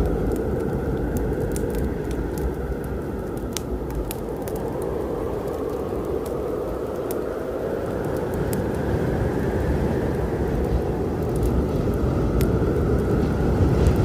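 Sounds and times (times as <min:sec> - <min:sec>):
thunderstorm rumble: 0:00.0 - 0:14.0
wood fire crackling: 0:00.0 - 0:14.0.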